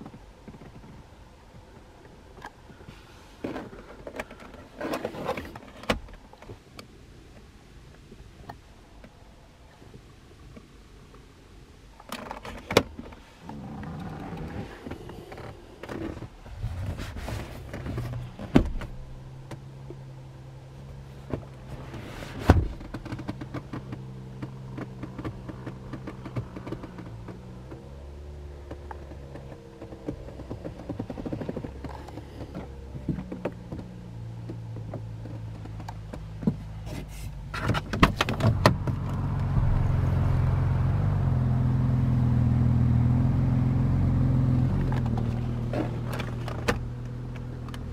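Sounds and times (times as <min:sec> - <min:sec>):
sharp clicks and thunks: 0:12.0 - 0:20.0, 0:21.2 - 0:27.9, 0:28.6 - 0:41.2, 0:44.8 - 0:47.9
steady rumble: 0:13.2 - 0:36.9, 0:37.9 - 0:47.9.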